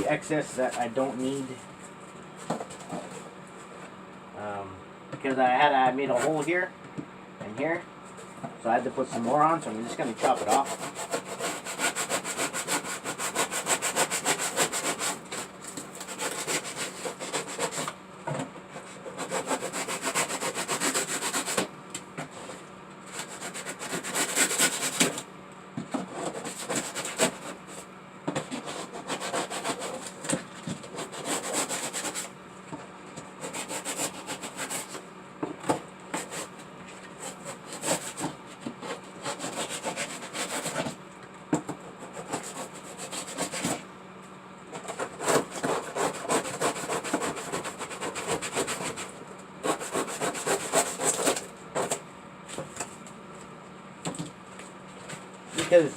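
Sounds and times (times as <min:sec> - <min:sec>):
blade scraping material: 0:09.1 - 0:17.9, 0:18.7 - 0:21.7, 0:22.3 - 0:25.2, 0:26.1 - 0:27.8, 0:28.4 - 0:32.3, 0:33.4 - 0:35.0, 0:37.2 - 0:41.0, 0:42.0 - 0:43.8, 0:44.7 - 0:52.0.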